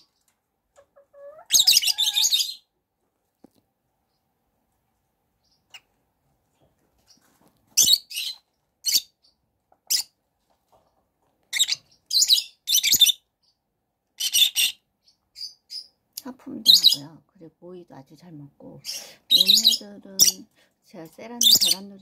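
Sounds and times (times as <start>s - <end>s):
young chickens cheeping: 0.0s - 2.8s.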